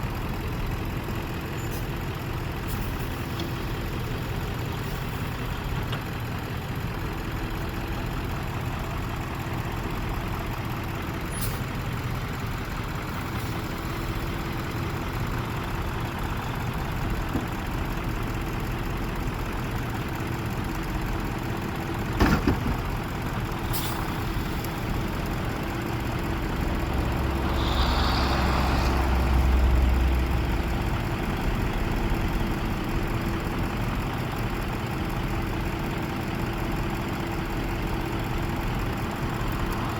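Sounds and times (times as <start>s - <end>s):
truck engine idling: 0.0s - 39.9s
short hiss: 27.0s - 30.2s.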